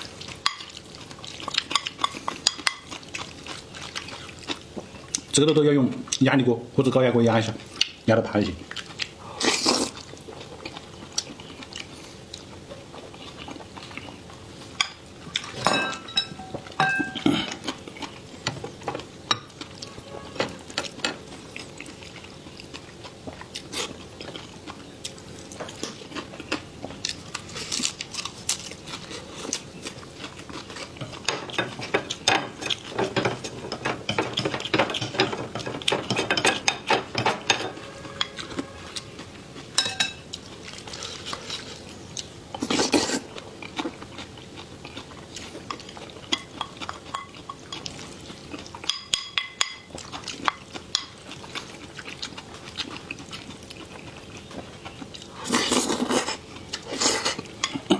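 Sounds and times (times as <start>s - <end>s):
biting and chewing: 20.8s - 37.5s, 38.9s - 57.9s
utensils clicking against dishes: 31.0s - 39.1s.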